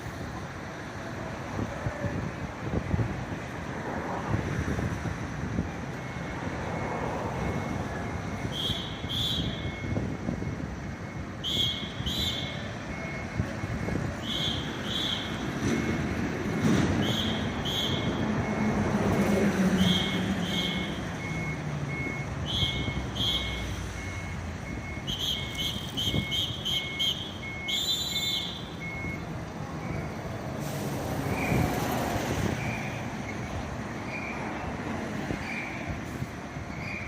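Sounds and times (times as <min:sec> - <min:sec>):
reversing alarm beeping: 0:05.8 - 0:30.4, 0:32.5 - 0:34.6.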